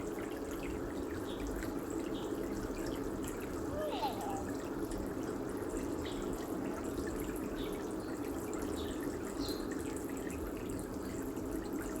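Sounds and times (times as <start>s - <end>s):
running water: 2.4s - 5.6s.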